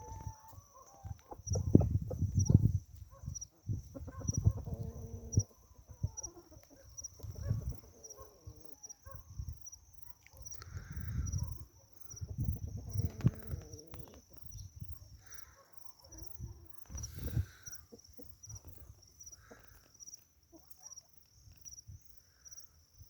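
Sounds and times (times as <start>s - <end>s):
chickens clucking: 0.0s - 8.8s, 10.9s - 14.6s, 15.6s - 20.9s.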